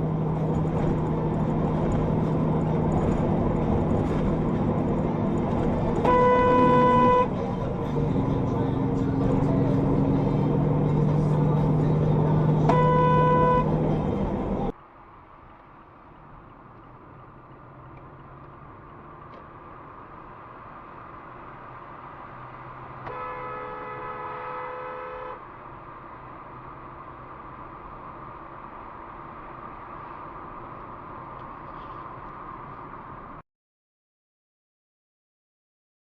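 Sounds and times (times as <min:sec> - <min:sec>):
road and engine noise: 0:00.0 - 0:33.4
car horn honking: 0:06.0 - 0:07.5, 0:12.5 - 0:14.2, 0:23.1 - 0:25.4.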